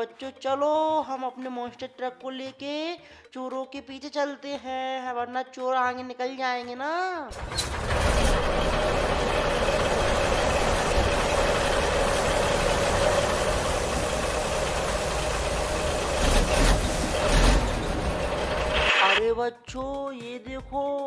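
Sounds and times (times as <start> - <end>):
toy truck motor hum: 7.3 - 19.2.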